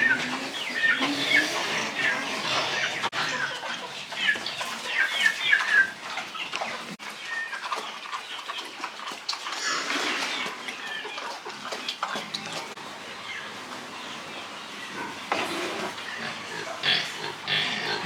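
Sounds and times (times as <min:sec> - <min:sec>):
farm animals calling: 0:00.0 - 0:18.0.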